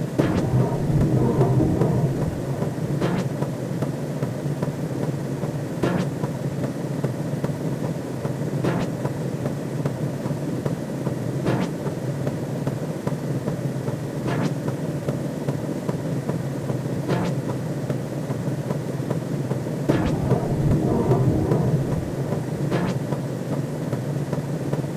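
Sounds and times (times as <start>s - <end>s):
whooshing swell: 0.0s - 3.7s, 19.9s - 23.5s
low electronic drone: 0.0s - 3.8s, 19.9s - 23.8s.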